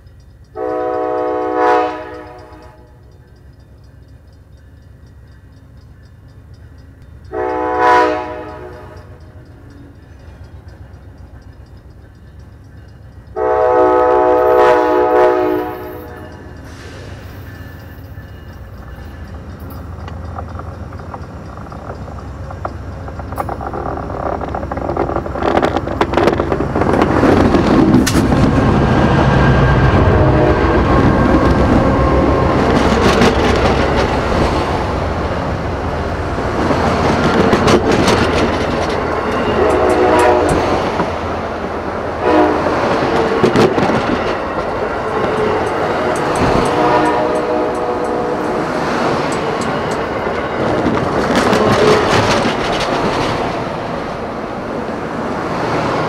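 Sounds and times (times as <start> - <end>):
train cars rumbling overhead: 0.0 - 56.0
train horn: 0.6 - 3.0, 7.3 - 9.2, 13.3 - 16.8, 28.8 - 33.1, 39.3 - 41.0, 42.1 - 43.8, 45.1 - 48.7
wheels clicking over rail joints: 15.5 - 28.8, 30.8 - 54.7.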